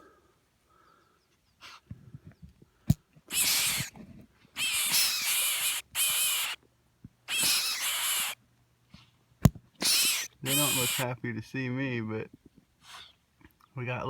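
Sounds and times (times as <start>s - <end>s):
birds giving harsh hissing calls: 3.3s - 3.9s, 4.6s - 6.6s, 7.3s - 8.4s, 9.8s - 11.1s.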